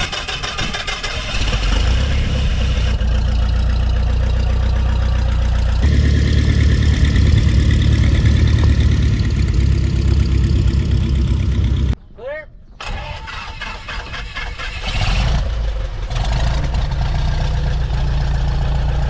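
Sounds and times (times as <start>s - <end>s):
light aircraft engine idling: 3.0s - 12.0s.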